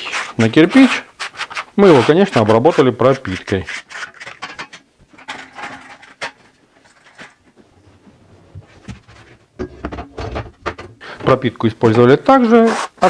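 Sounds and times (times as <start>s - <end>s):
spatula scraping adhesive on brick: 0.0s - 4.4s.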